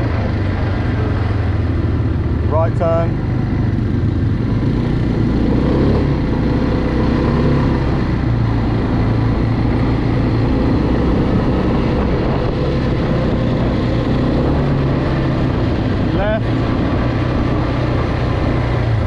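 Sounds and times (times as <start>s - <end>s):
quad bike engine running: 0.0s - 19.0s.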